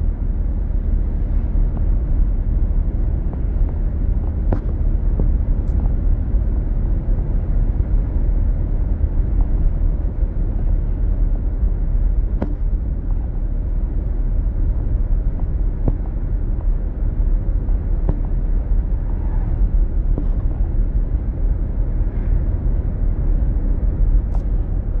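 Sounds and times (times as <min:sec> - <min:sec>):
car cabin road and engine rumble: 0:00.0 - 0:25.0.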